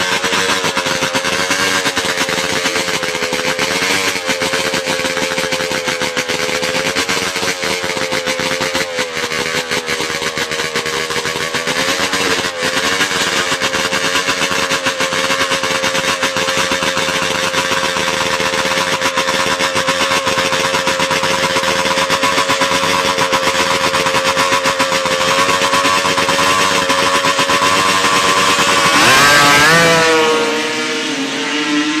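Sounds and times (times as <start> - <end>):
motorcycle engine revving high: 0.0 - 32.0.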